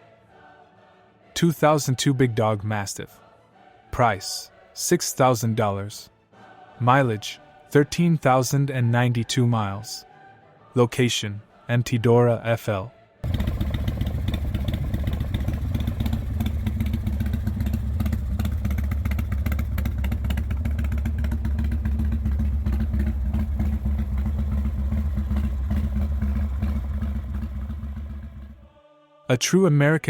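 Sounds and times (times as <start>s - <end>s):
motorcycle engine running: 13.2s - 28.7s.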